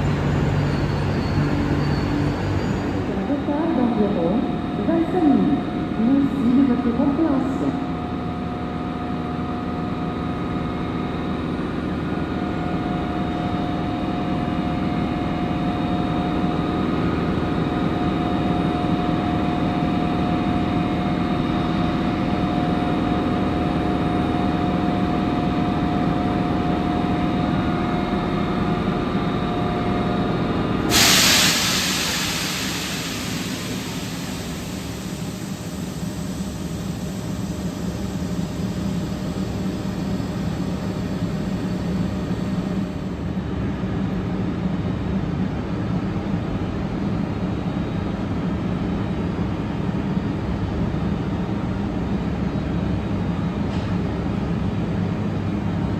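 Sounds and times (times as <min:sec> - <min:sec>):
train humming: 0:00.0 - 0:53.5
loud hiss of air: 0:30.8 - 0:42.8.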